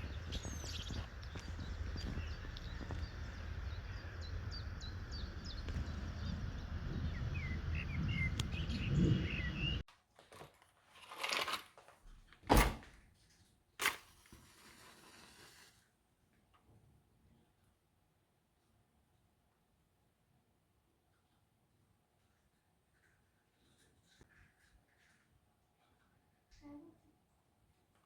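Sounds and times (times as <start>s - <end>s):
small birds chirping: 0.0s - 9.8s
steady low rumble: 0.0s - 9.8s.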